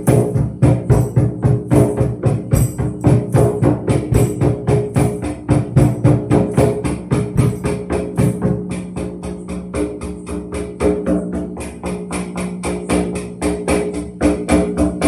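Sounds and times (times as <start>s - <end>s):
tambourine played fast: 0.0s - 8.6s.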